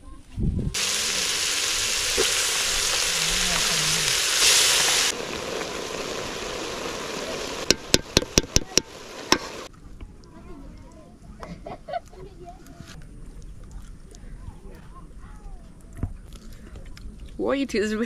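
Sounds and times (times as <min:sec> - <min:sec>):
food sizzling in a pot: 0:00.7 - 0:09.7.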